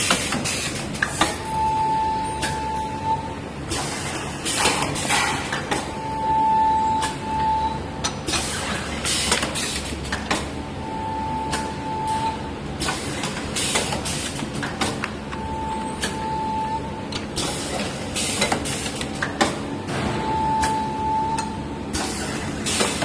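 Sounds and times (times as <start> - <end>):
machine hisses and clacks: 3.7 - 5.7, 12.8 - 15.0, 17.4 - 19.6, 21.9 - 23.0.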